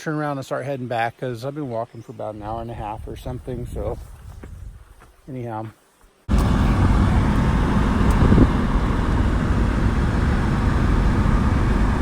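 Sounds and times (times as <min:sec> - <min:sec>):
van road and engine noise: 0:06.3 - 0:12.0.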